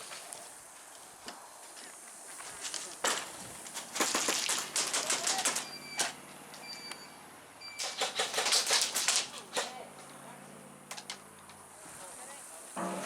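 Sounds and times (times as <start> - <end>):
airsoft guns firing: 3.9 - 5.8, 7.8 - 9.7.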